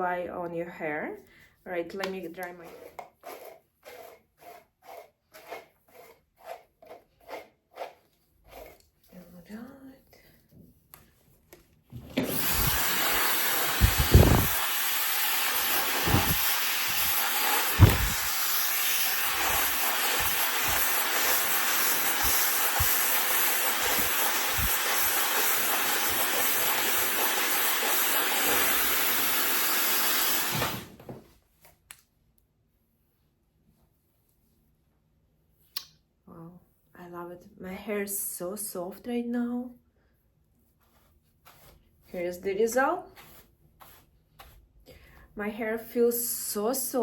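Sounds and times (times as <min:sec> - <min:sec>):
hair dryer blowing: 0:12.1 - 0:31.0
low thumps: 0:17.8 - 0:18.3.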